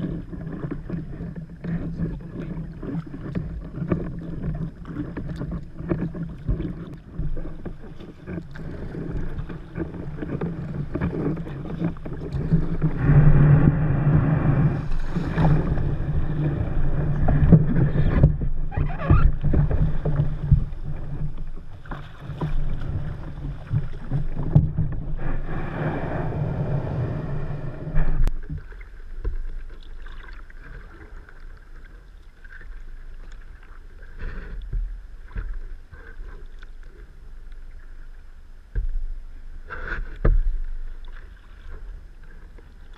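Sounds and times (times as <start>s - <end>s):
water lapping: 0.0s - 42.9s
water splashing against kayak hull: 0.0s - 42.9s.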